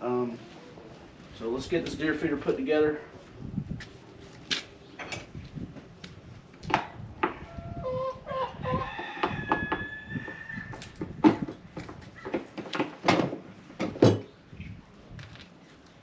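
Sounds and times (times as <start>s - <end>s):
rooster crowing: 7.5s - 10.8s.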